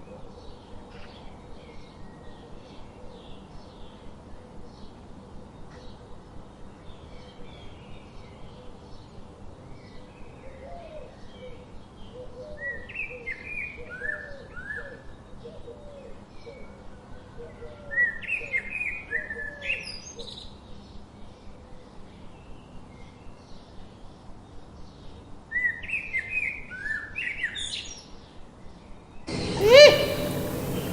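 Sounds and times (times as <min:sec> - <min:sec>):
downward-sliding bird chirps: 0:29.3 - 0:30.9
lower repeated bird call: 0:29.3 - 0:30.9.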